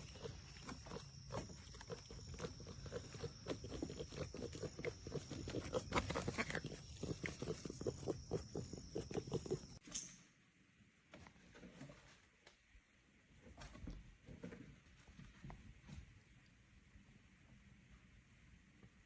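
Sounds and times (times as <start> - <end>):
small dog panting: 0.0 - 9.8.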